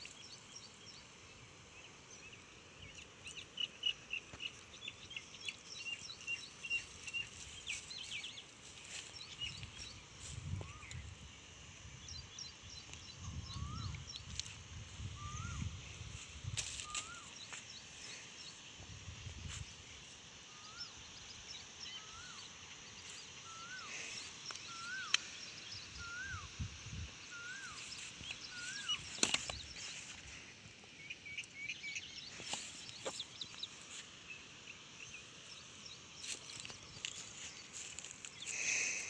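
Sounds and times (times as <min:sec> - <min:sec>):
faint high bird chirping: 0:12.0 - 0:17.9, 0:19.2 - 0:30.2.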